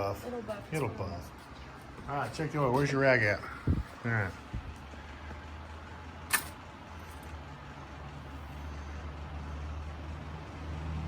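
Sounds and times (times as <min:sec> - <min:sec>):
low mechanical hum: 0:00.0 - 0:11.0
sharp click: 0:06.3 - 0:06.6.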